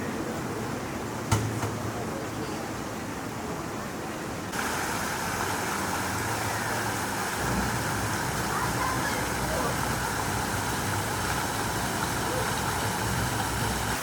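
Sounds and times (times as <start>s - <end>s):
rain hissing: 4.5s - 14.0s.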